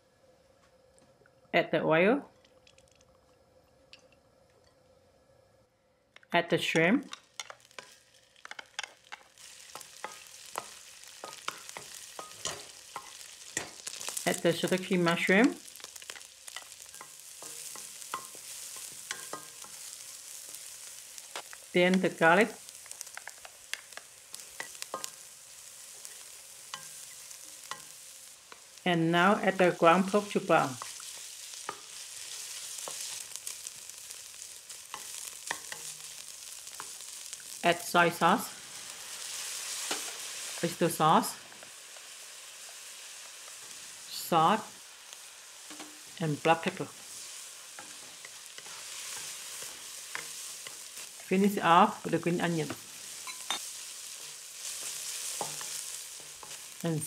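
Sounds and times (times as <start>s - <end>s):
shrimp sizzling in oil: 6.4s - 57.0s
wooden spatula scraping wok: 45.6s - 57.0s.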